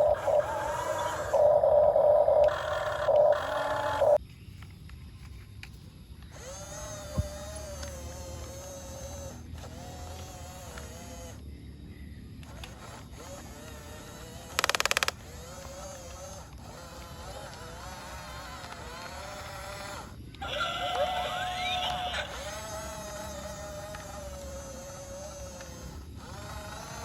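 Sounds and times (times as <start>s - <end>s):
whine with sweeping pitch: 0.0s - 4.2s
small electric motors whining: 0.0s - 27.0s
rattle of rapid clicks: 12.4s - 19.9s.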